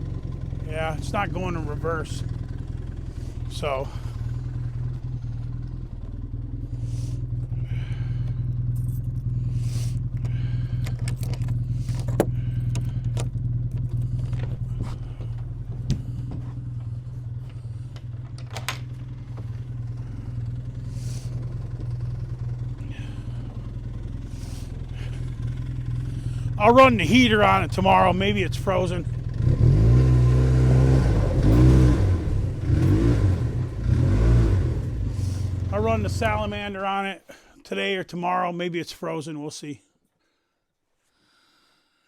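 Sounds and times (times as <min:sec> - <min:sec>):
snowmobile engine idling: 0:00.0 - 0:37.1
clicks and clanks: 0:10.1 - 0:16.0.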